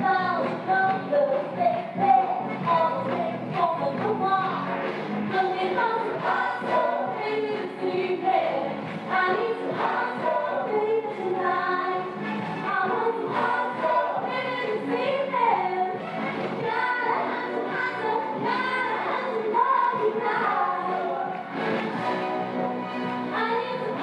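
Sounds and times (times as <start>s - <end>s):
choir singing: 5.4s - 21.5s.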